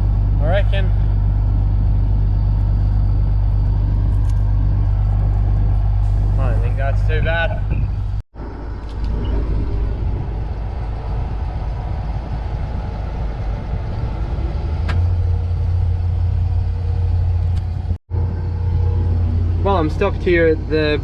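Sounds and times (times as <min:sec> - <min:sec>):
combine harvester running: 0:00.0 - 0:21.0.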